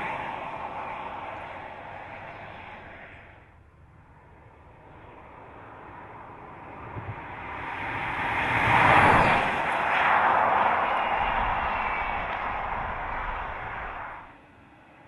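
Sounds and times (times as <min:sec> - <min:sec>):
car passing by: 0:07.2 - 0:14.3.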